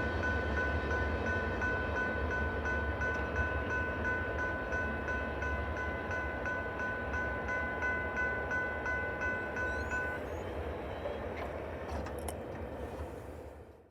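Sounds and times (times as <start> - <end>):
railroad crossing bells ringing: 0.0 - 12.5
freight train rumbling past: 0.0 - 13.7.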